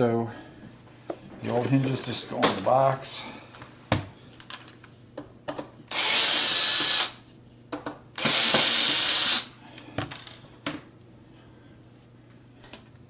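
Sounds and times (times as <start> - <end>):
power drill driving screws: 5.9 - 7.2, 8.2 - 9.5.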